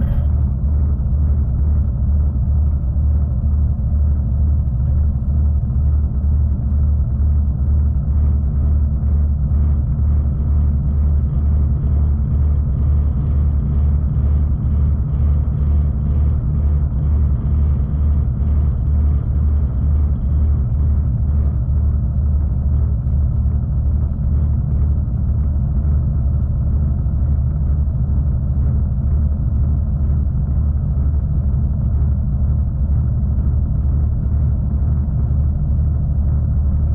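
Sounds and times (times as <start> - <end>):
train rumbling on track: 0.0 - 1.1.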